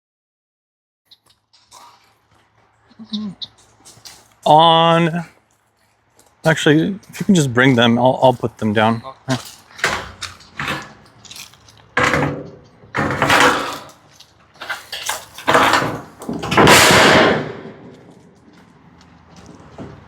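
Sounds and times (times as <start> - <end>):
metal roofing panels clattering: 9.4 - 11.1, 12.0 - 18.2.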